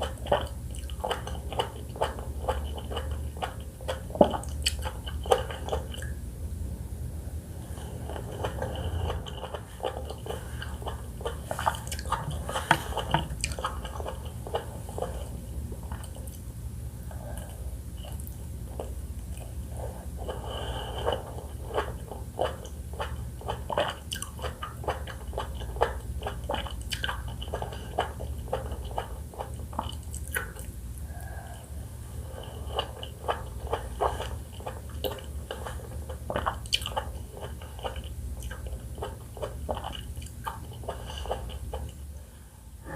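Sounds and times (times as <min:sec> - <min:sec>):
chewing fruit clicks and smacks: 0:00.0 - 0:06.2, 0:08.0 - 0:16.5, 0:17.3 - 0:19.6, 0:21.0 - 0:30.8, 0:32.8 - 0:42.0
steady low hum: 0:00.0 - 0:42.9.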